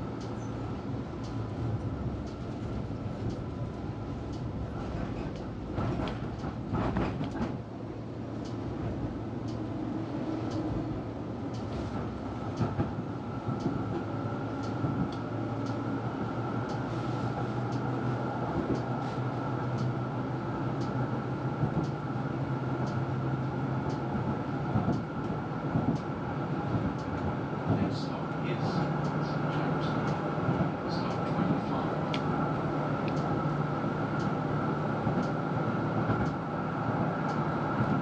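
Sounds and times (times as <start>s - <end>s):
electric tram rumbling on tracks: 0.0s - 38.0s
sharp clicks of tram wheels: 1.2s - 7.6s, 11.4s - 20.0s, 20.6s - 26.1s, 28.7s - 36.5s.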